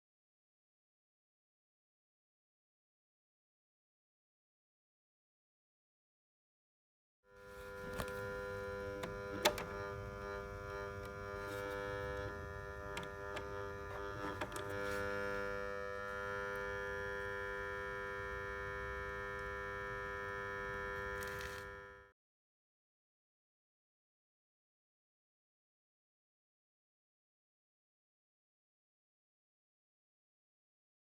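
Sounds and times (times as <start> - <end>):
contactor buzzing electrical hum: 7.3 - 22.1.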